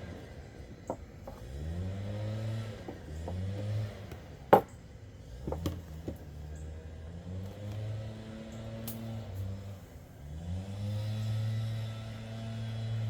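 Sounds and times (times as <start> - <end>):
engine revving: 1.3 - 4.2, 6.5 - 13.0.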